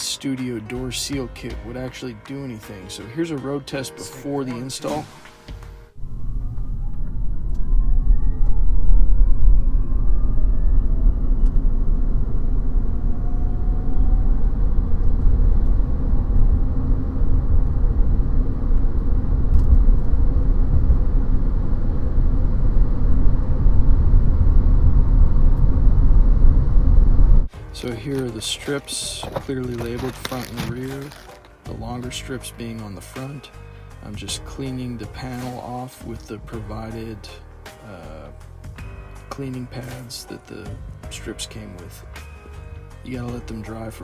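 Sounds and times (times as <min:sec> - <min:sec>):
heavy low rumble: 0:05.8 - 0:37.3
rising whine: 0:05.9 - 0:28.0
road and wind noise: 0:06.0 - 0:27.5.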